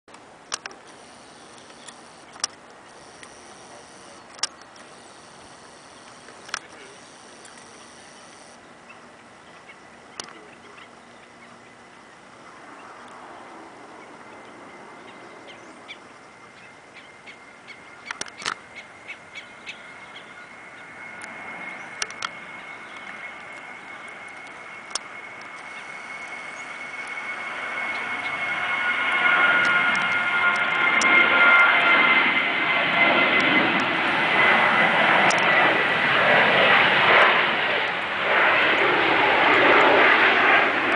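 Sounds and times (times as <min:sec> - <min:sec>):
jet engines rushing: 0:00.1 - 0:40.9
sharp clicks: 0:00.5 - 0:08.6.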